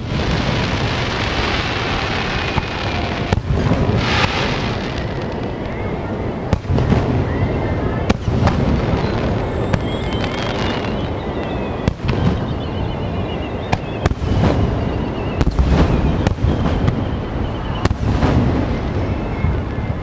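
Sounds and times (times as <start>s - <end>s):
fireworks crackling and rumble: 0.0s - 20.0s
sharp fireworks bangs: 0.0s - 20.0s
fireworks shells bursting: 2.0s - 5.7s.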